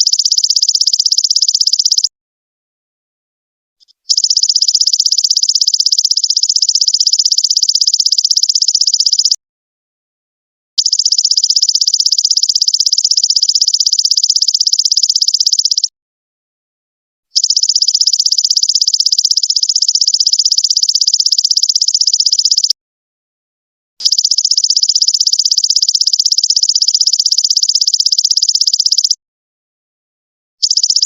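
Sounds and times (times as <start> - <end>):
insect pulsing trill: 0.0 - 2.1, 4.0 - 9.4, 10.8 - 15.9, 17.3 - 22.8, 24.0 - 29.2, 30.6 - 31.0.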